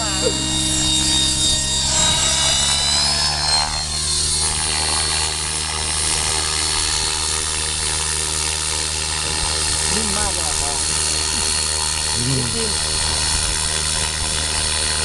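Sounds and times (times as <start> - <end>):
tones sweeping downward: 0.0 - 4.3
model helicopter motor whine: 0.0 - 15.0.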